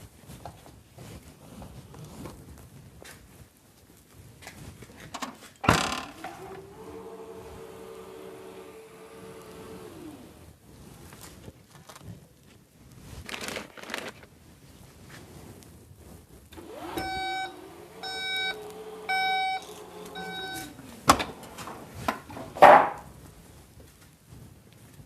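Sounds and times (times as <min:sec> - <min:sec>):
electronic beeps: 0:17.0 - 0:20.8
sharp knocks: 0:22.1 - 0:23.0.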